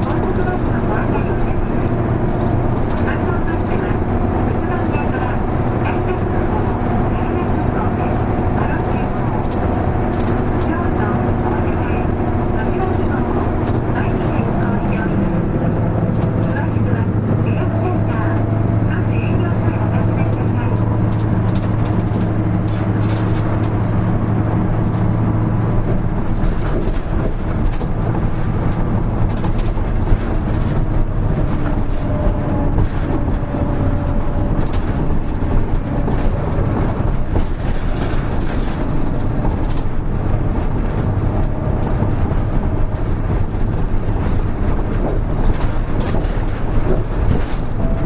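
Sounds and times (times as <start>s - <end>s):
bus diesel engine hum: 0.0s - 48.0s
small rattles and clicks: 2.5s - 3.2s, 8.6s - 10.8s, 15.9s - 16.9s, 20.2s - 48.0s.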